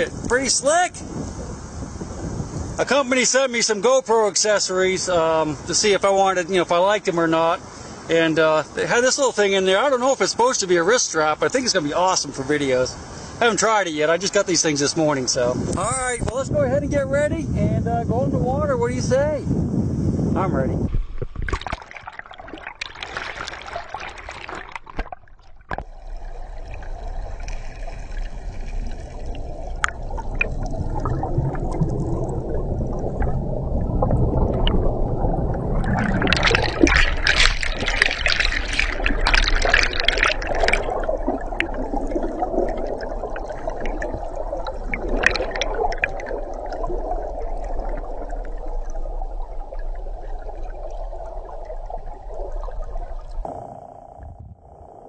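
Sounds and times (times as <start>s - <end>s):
muffled underwater bubbling: 20.9s - 55.0s
water splashing and gurgling: 20.9s - 55.0s.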